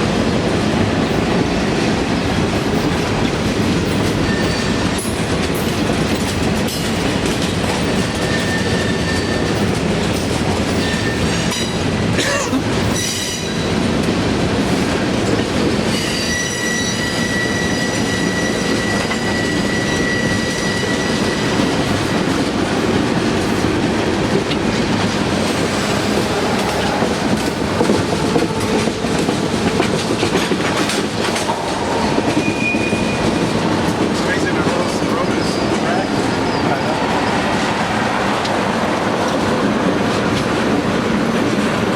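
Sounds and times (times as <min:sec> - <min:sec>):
steel wheels clattering over rail joints: 0:00.1 - 0:41.8
high wheel squeals: 0:04.2 - 0:05.2, 0:08.1 - 0:09.7, 0:15.9 - 0:21.8.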